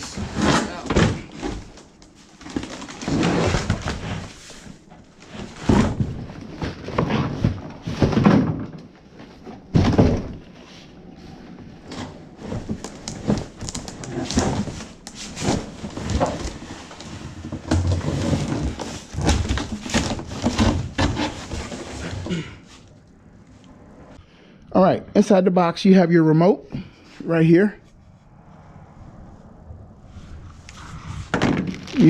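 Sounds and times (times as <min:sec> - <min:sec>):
cardboard rustling and scraping: 0:00.0 - 0:22.9
knocks and thumps: 0:31.3 - 0:32.0.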